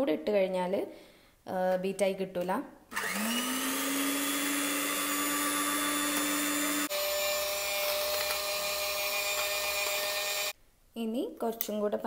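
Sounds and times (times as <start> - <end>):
electric hand mixer whisking: 2.9 - 10.6.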